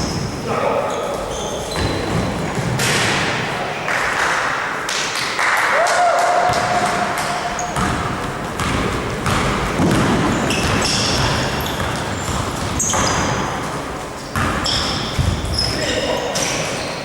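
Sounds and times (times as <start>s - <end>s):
shoes squeaking on court: 0.0s - 2.8s, 7.2s - 17.0s.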